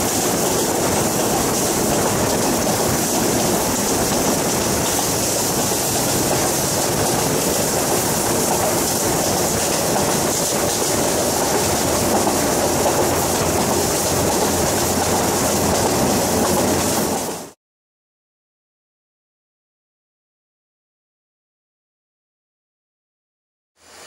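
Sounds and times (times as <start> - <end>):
rushing air: 0.0 - 17.6
train wheels rumbling on rails: 0.0 - 17.6.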